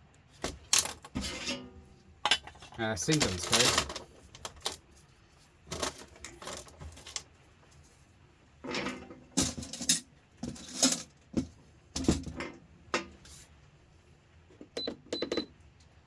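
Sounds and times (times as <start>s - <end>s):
scrap metal clinking and rattling: 0.4s - 4.9s, 5.7s - 7.3s, 8.6s - 11.2s.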